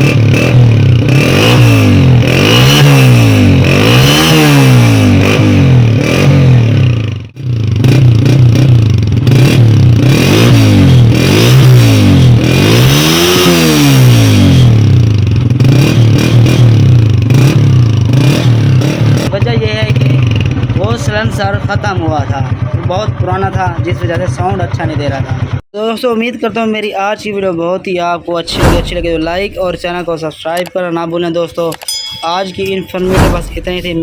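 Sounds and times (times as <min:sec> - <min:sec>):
motorcycle engine revving: 0:00.0 - 0:25.6.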